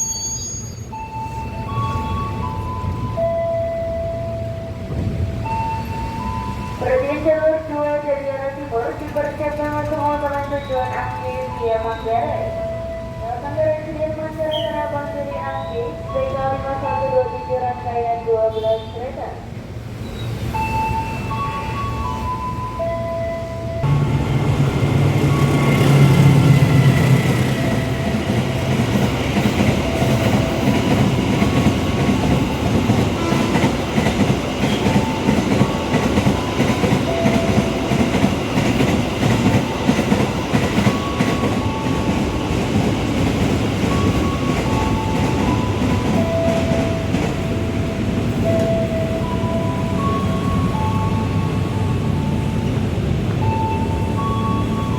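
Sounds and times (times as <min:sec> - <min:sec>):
electric train rumbling on track: 0:00.0 - 0:54.9
wheels clicking over rail joints: 0:08.9 - 0:11.6.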